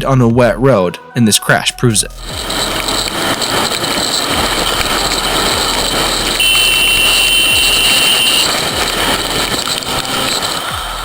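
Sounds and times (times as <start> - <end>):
motorcycle engine: 2.2 - 11.0
wind and road noise: 2.2 - 11.0
high-pitched beep: 5.9 - 8.6.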